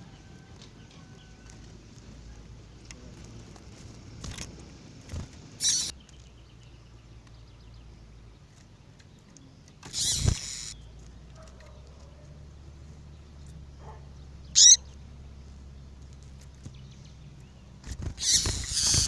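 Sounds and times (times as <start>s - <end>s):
bird chirping: 5.6s - 19.0s.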